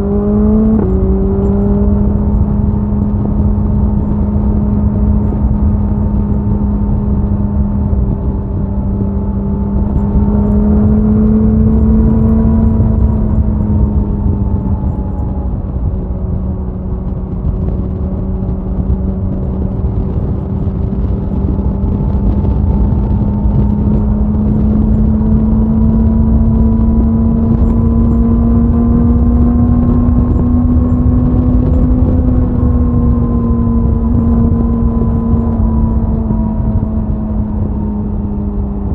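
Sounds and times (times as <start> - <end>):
motorcycle engine and exhaust cruising: 0.0 - 38.9
wind rush over microphone: 0.0 - 38.9.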